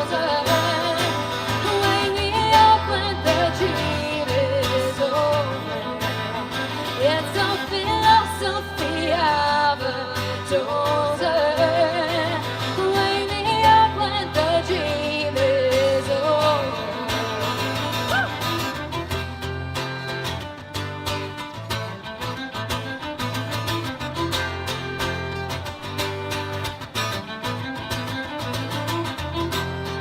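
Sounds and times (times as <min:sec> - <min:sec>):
strummed guitar: 0:00.0 - 0:30.0.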